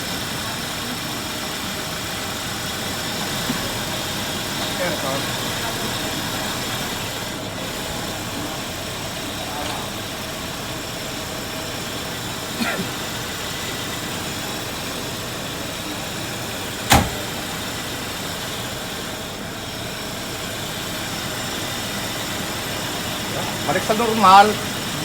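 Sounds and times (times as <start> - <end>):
car engine idling: 0.0 - 25.0
sharp knock: 16.9 - 17.3.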